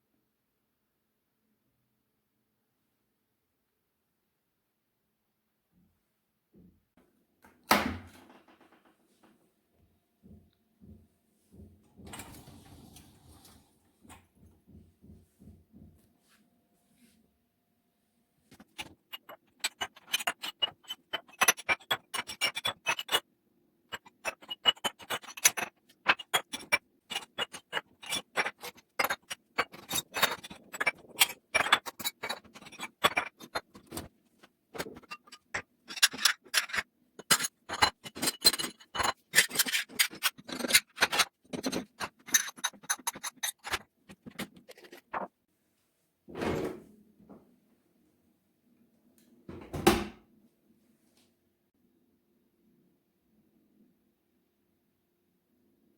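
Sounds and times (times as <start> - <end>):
kitchen items clattering: 18.5 - 23.2, 23.9 - 45.3.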